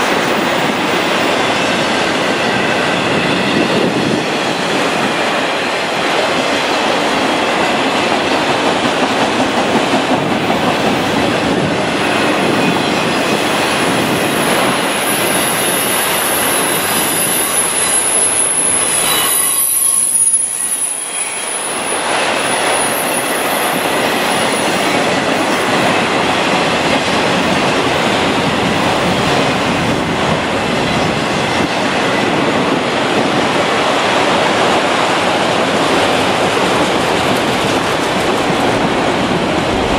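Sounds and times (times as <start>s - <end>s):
train rumbling past on rails: 0.0s - 39.9s
high wheel squeal: 12.2s - 24.8s.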